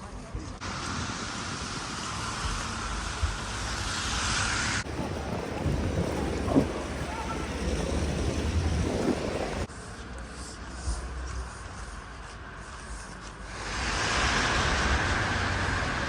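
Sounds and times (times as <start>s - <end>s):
wind buffeting microphone: 4.8s - 9.7s
street noise: 4.8s - 13.4s.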